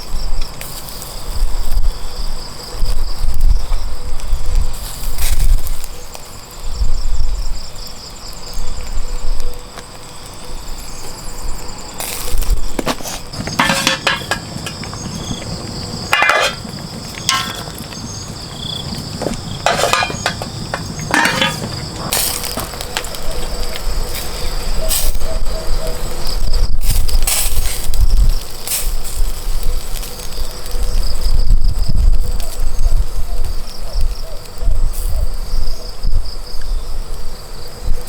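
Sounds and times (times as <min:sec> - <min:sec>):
insects droning: 0:00.0 - 0:38.0
knocks and clatters: 0:12.8 - 0:18.0, 0:18.9 - 0:22.7.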